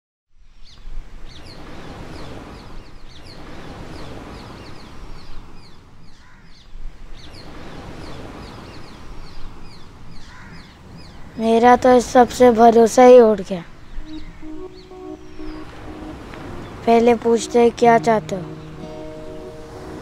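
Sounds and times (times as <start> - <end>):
birds chirping: 12.9 - 20.0.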